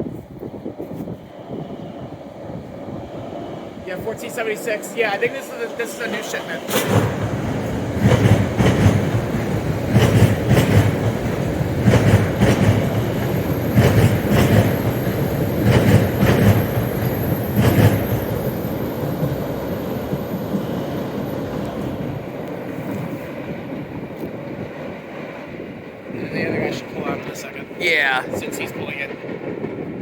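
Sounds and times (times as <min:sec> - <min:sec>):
train rumble: 0:00.0 - 0:30.0
train wheels clacking over rail joints: 0:05.9 - 0:18.4.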